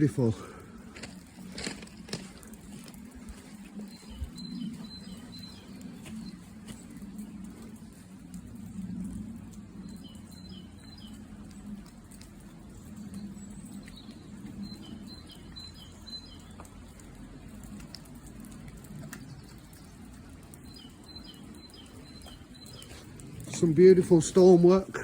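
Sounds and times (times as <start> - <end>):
songbird chirping: 0.0 - 25.0
steady low rumble: 0.0 - 25.0.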